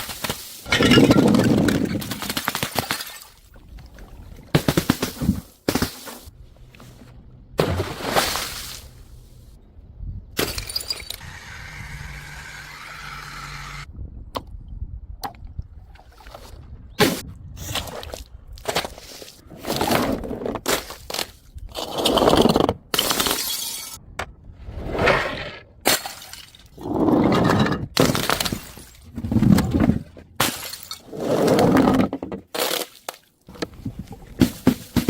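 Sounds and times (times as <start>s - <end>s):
glass shards clattering: 0.7s - 1.7s, 23.0s - 24.0s
glass bottles smashing: 0.7s - 3.3s, 10.4s - 11.2s, 23.0s - 24.0s.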